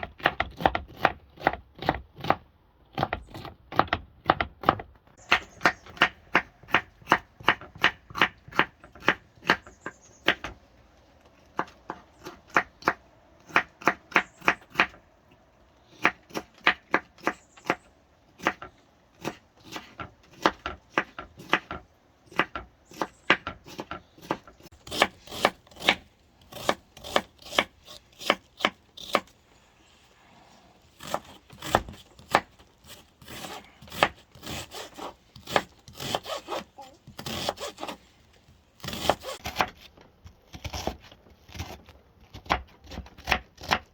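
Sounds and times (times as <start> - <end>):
knife chopping vegetables: 15.9 - 17.8, 18.4 - 29.3, 31.0 - 38.0, 38.8 - 39.8, 40.6 - 43.9.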